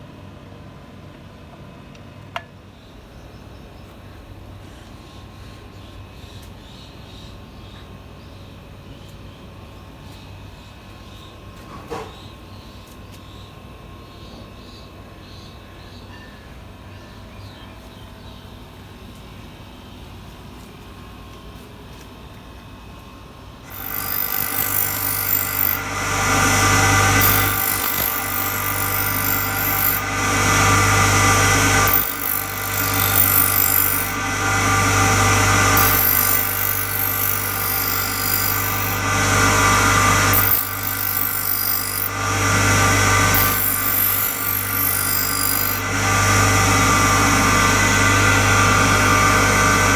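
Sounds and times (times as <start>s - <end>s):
bench grinder grinding: 23.7s - 49.9s
motor hum: 23.7s - 49.9s.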